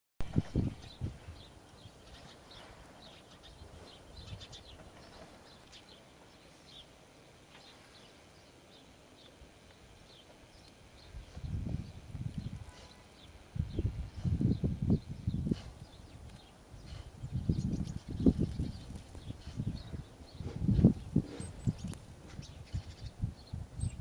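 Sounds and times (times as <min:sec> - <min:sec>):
small birds chirping: 0:00.3 - 0:24.0.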